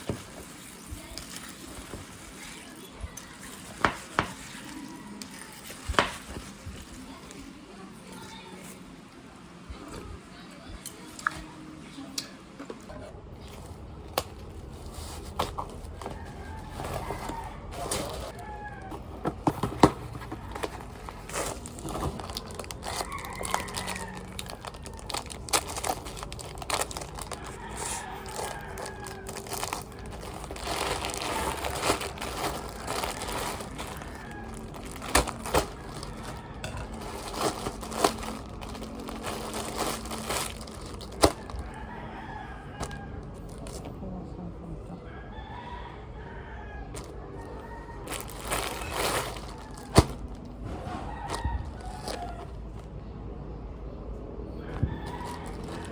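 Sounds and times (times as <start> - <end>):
rooster crowing: 15.9 - 19.6, 21.3 - 25.3, 26.8 - 40.8, 41.4 - 43.4, 45.0 - 52.7, 54.5 - 55.9.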